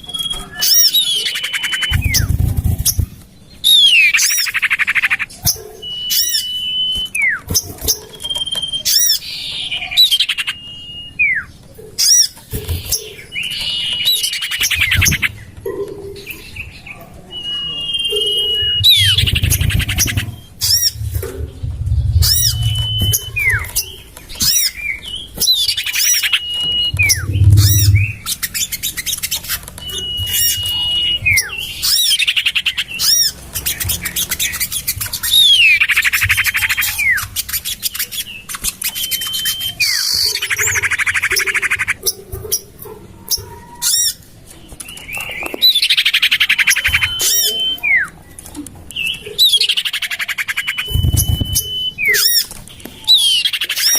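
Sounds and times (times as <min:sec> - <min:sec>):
bird calls whistles and rattling trills: 0:00.0 - 0:53.9
low rumble: 0:18.6 - 0:24.0, 0:26.9 - 0:28.4.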